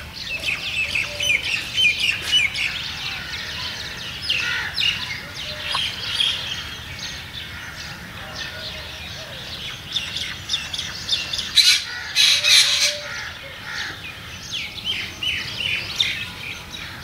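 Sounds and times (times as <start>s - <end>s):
birds chirping: 0.0s - 17.0s
harsh bird squawks: 11.5s - 14.0s.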